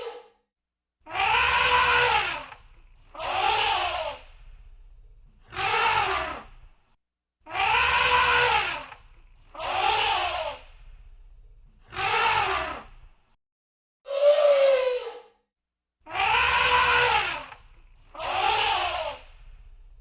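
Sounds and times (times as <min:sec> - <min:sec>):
elephant trumpeting: 0:01.1 - 0:04.2, 0:07.5 - 0:10.6, 0:11.9 - 0:12.9, 0:16.1 - 0:17.6, 0:18.2 - 0:19.2
low rumble: 0:04.2 - 0:05.5, 0:10.6 - 0:11.8.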